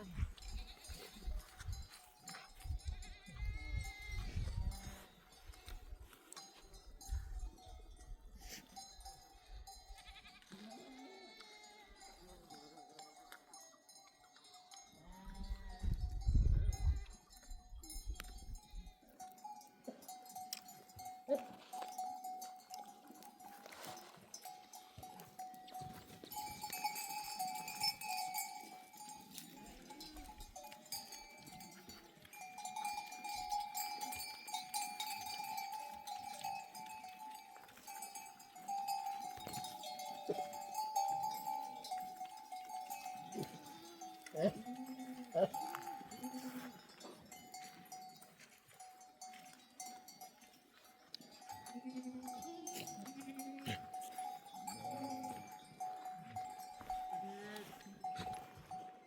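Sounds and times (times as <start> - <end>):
animal bells ringing: 0.0 - 59.0
sheep bleating: 2.9 - 5.8, 10.0 - 12.2, 43.3 - 46.7.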